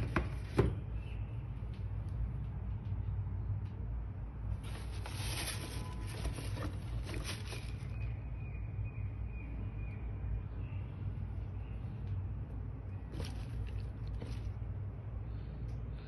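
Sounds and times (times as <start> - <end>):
steady low rumble: 1.0 - 5.8
crinkly packaging rustling: 4.6 - 8.1, 13.1 - 14.6.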